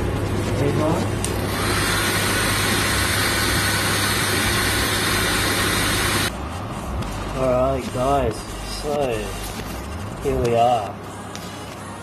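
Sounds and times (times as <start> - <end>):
hairdryer blowing: 1.4 - 6.3.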